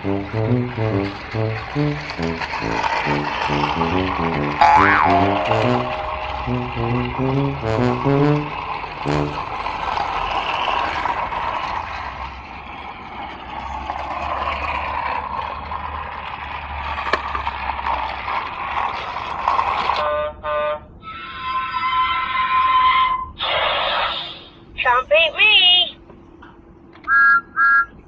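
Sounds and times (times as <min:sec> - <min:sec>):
short electronic sounds: 0:00.0 - 0:09.5
toy train whirring: 0:08.6 - 0:20.0.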